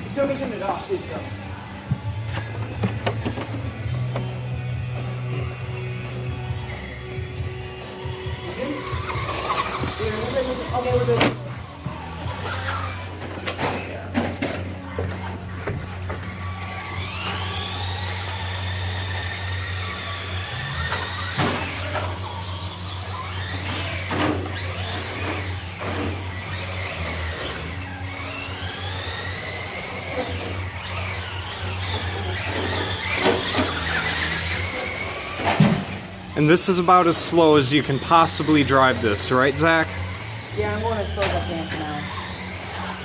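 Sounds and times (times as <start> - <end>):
electric motor whining: 0.0 - 43.0.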